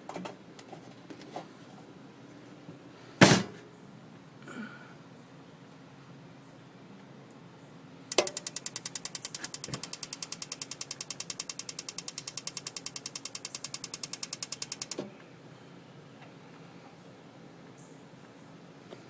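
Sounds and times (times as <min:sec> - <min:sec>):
spark igniter clicking rapidly: 0:08.1 - 0:15.0.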